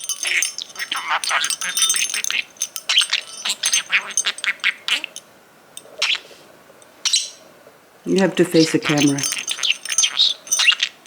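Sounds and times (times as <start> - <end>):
small toy bell jingling: 0.0 - 5.2, 8.8 - 10.9.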